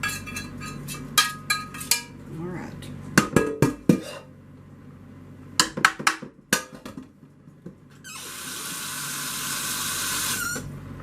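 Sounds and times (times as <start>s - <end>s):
kitchenware clinking and knocking: 0.0s - 2.2s, 3.2s - 4.2s.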